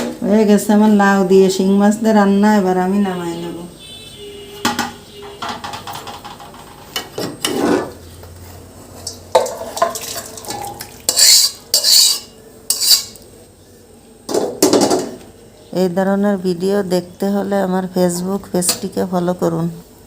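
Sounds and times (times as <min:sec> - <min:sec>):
metal spoon scraping a cooking pot: 0:06.8 - 0:08.0, 0:08.9 - 0:13.2.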